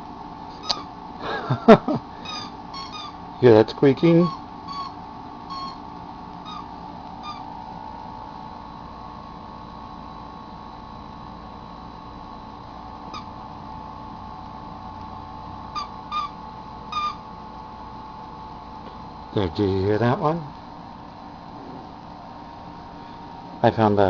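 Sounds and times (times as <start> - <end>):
puppy high squeaks: 0.6 - 0.9, 2.2 - 3.2, 4.2 - 5.8, 6.4 - 7.5, 15.8 - 17.2.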